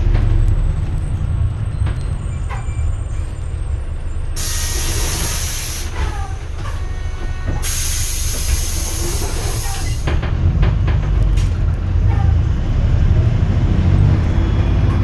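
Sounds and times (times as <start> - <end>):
bus diesel engine rumble: 0.0 - 15.0
pneumatic air hiss: 4.4 - 6.3, 7.5 - 10.1.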